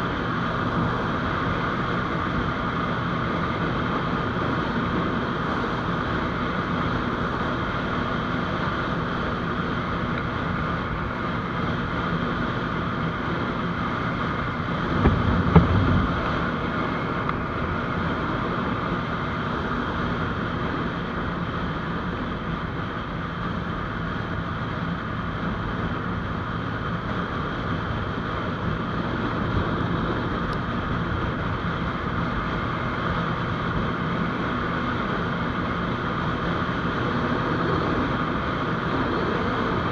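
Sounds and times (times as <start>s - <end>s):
motorcycle engine cruising: 0.0s - 39.9s
wind on microphone: 14.4s - 18.5s
low thump: 14.9s - 16.3s.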